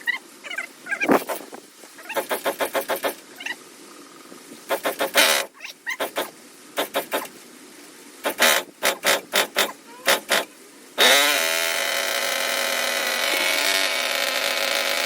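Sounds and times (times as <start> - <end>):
short rasping strokes: 1.1 - 3.2, 4.6 - 7.4.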